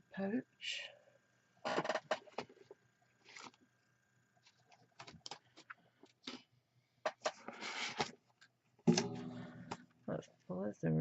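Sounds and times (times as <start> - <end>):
rustling of craft supplies: 1.7 - 3.7, 4.4 - 6.4.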